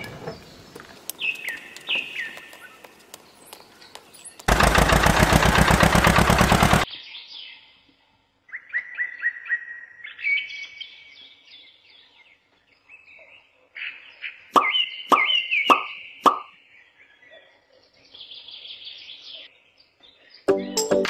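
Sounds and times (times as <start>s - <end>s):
birds chirping: 0.0s - 4.8s, 5.4s - 21.0s
fast rattling burst: 4.5s - 6.9s.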